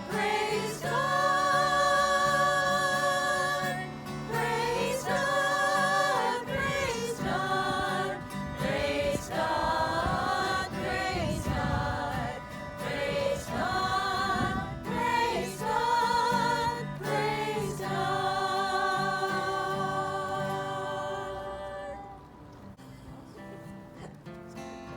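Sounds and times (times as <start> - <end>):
group singing a gospel hymn: 0.0 - 22.3.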